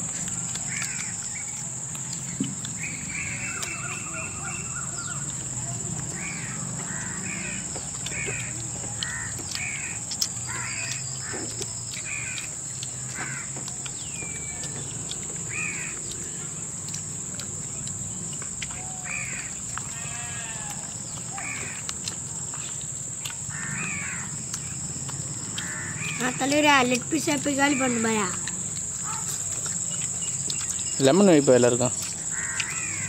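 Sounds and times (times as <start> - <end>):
steady high-pitched hiss: 9.6 - 33.0.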